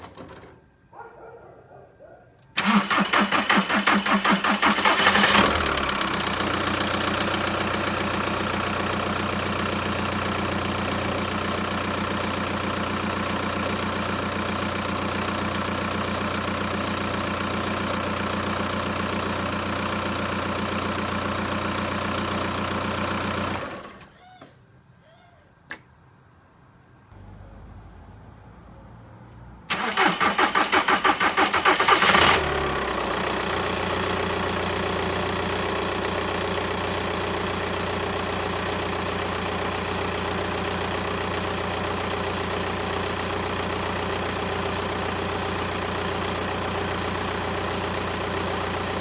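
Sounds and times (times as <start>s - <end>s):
starter cranking engine: 2.6s - 21.2s, 29.7s - 49.0s
diesel engine idling: 2.6s - 24.0s, 29.7s - 49.0s.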